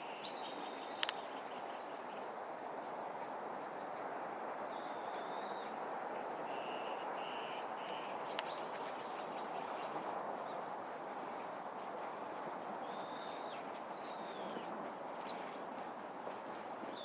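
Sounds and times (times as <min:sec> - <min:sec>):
wild birds calling: 0:00.0 - 0:02.3, 0:04.7 - 0:11.6, 0:12.8 - 0:15.7
steady background hiss: 0:00.0 - 0:17.0.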